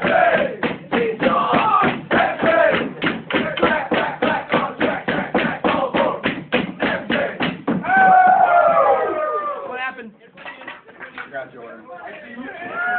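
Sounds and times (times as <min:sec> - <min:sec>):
percussive hits: 0:00.0 - 0:08.4
voices chanting rhythmically: 0:00.0 - 0:09.7.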